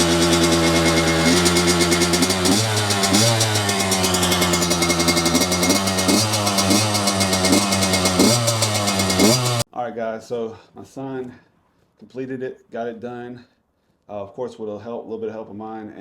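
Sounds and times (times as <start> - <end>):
dirt bike engine revving: 0.0 - 9.6.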